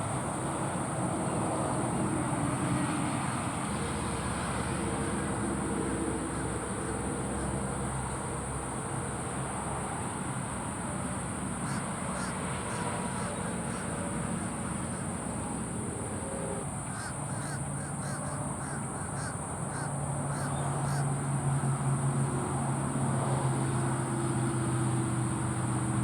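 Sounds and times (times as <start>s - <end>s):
birds calling: 11.6s - 21.8s.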